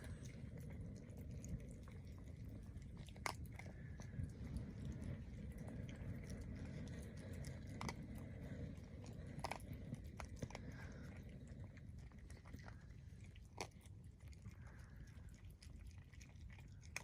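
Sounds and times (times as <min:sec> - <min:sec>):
low rumble: 0:00.0 - 0:13.4
person chewing and crunching food: 0:00.0 - 0:17.0.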